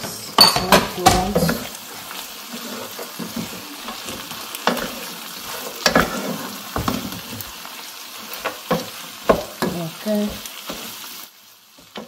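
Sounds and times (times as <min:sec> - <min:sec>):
wooden spoon stirring: 0:00.0 - 0:07.6
meat sizzling in a pan: 0:00.0 - 0:12.0
spoon knocking against pan: 0:08.7 - 0:10.4.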